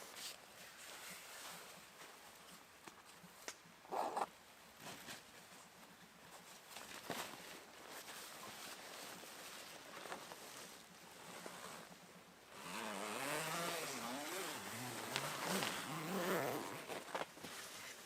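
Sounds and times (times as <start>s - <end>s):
small engine revving: 12.6s - 16.9s.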